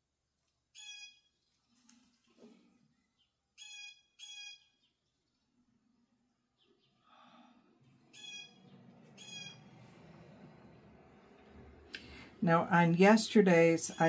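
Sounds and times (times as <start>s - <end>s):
bird harsh calls: 0.8s - 1.4s, 3.2s - 5.0s, 6.6s - 10.1s.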